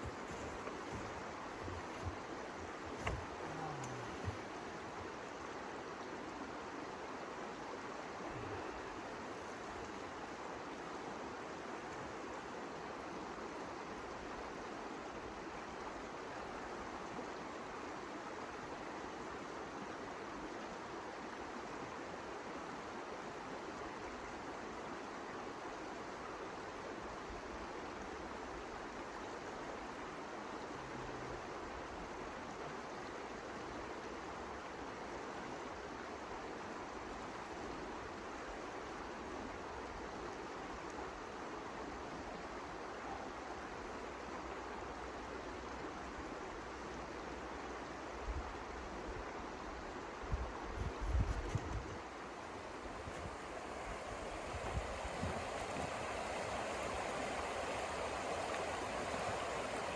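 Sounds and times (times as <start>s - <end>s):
steady rushing noise: 50.8s - 59.9s.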